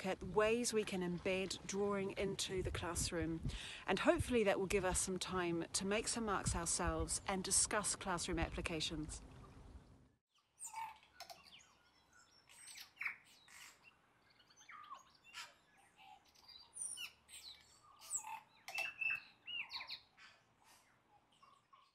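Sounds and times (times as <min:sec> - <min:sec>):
birds chirping and whistling: 0:10.6 - 0:21.9.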